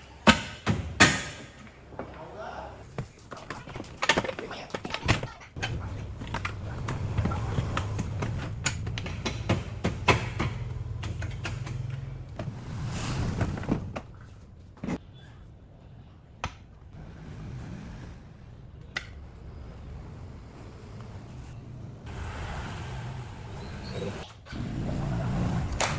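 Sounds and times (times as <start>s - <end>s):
knocks and clatter: 3.0s - 15.0s.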